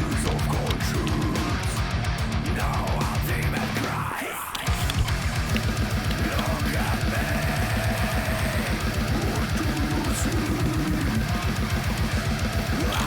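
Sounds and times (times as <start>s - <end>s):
distorted electric guitar: 0.0s - 13.0s
fast kick drum beats: 4.7s - 13.0s.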